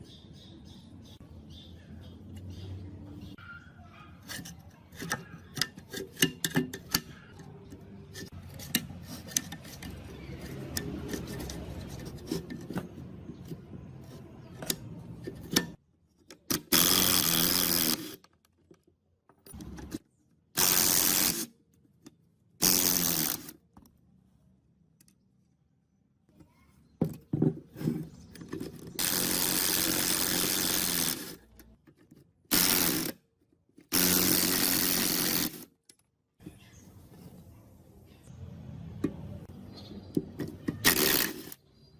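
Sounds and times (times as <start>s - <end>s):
power tool bursts: 16.5s - 18.2s, 20.6s - 21.5s, 22.6s - 23.5s, 29.0s - 31.4s, 32.5s - 33.2s, 33.9s - 35.7s, 40.8s - 41.6s.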